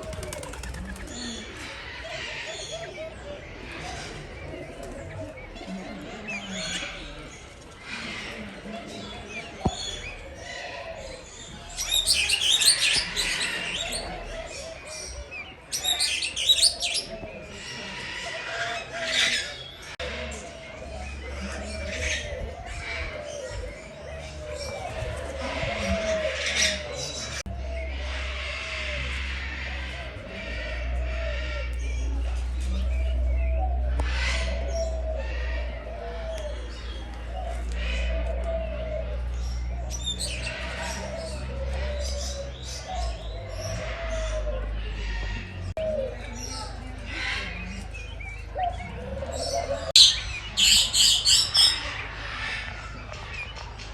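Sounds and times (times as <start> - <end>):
small birds chirping and twittering: 0.0 - 53.9
steady low hum: 27.2 - 50.6.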